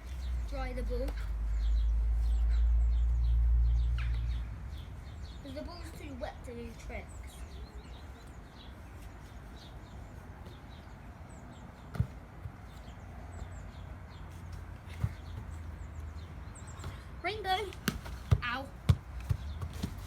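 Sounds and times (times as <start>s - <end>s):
football thuds: 11.8s - 13.2s, 14.5s - 16.0s, 16.8s - 20.0s.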